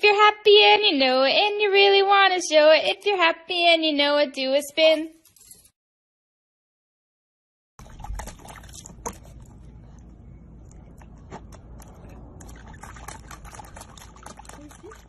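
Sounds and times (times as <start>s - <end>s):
low steady rumble: 7.8s - 15.0s
puppy lapping and splashing water: 7.8s - 15.0s.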